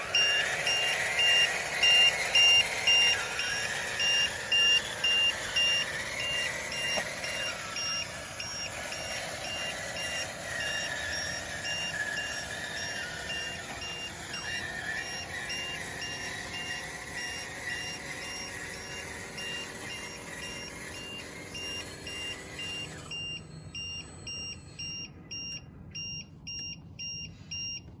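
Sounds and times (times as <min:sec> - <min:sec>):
vehicle engine running: 0:00.0 - 0:26.0
reversing alarm beeping: 0:00.0 - 0:27.9.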